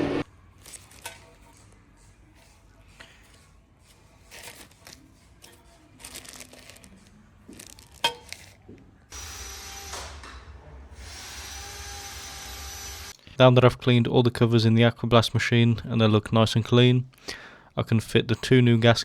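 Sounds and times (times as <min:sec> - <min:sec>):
handling rustles: 0:00.6 - 0:08.9.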